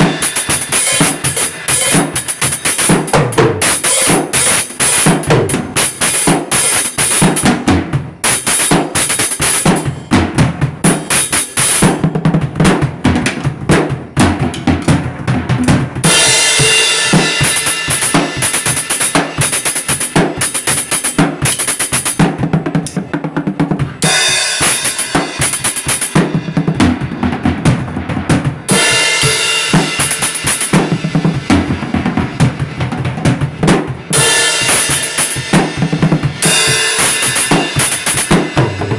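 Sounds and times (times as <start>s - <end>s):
fast kick and snare drums: 0.0s - 38.9s
cymbal wash: 0.1s - 2.8s.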